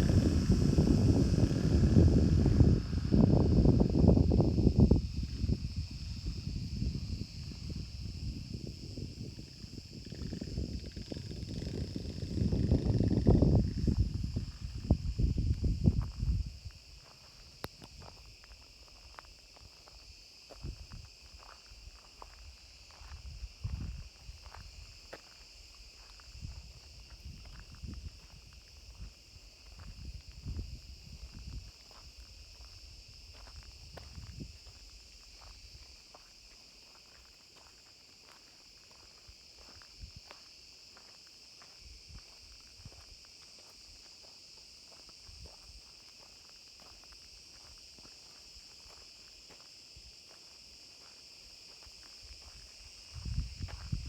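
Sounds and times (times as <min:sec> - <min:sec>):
low rumbles: 0:00.0 - 0:05.2
insect chorus chirring: 0:00.0 - 0:54.0.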